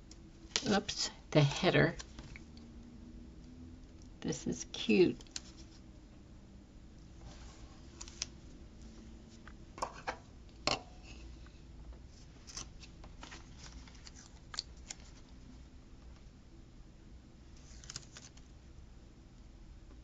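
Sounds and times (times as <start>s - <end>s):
paper stickers rustling: 12.4s - 15.3s, 17.6s - 18.5s.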